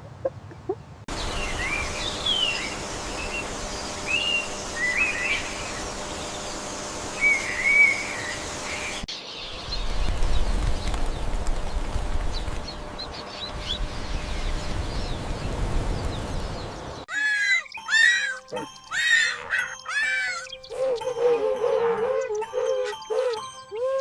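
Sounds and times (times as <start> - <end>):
steady outdoor background: 0.0 - 24.0
birds chirping: 0.4 - 24.0
low rumbling background: 1.1 - 17.1.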